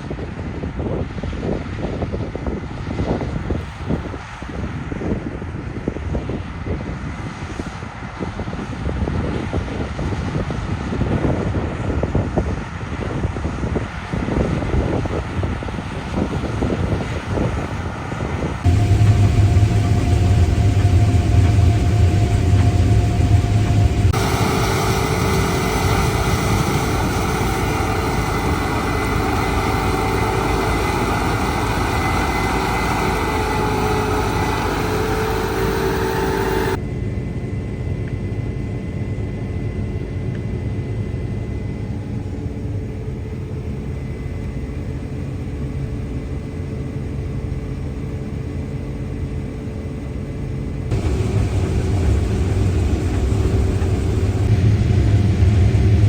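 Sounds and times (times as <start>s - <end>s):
harvest machinery engine drone: 18.0s - 36.9s, 48.5s - 56.0s.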